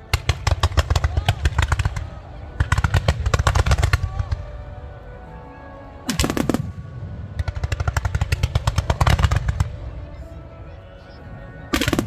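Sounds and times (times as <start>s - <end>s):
fireworks crackling pops: 0.0s - 4.4s.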